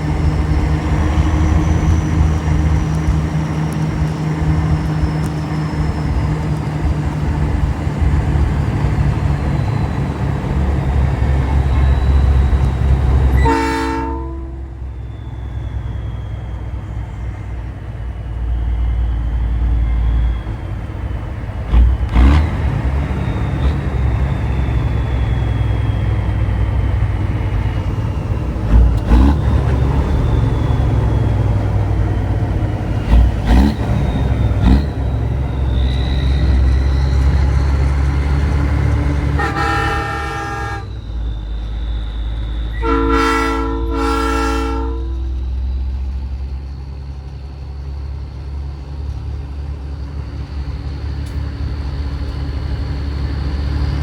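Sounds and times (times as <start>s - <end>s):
truck engine rumbling: 0.0s - 54.0s
air horn blasts: 13.3s - 14.9s, 39.2s - 41.1s, 42.7s - 45.4s.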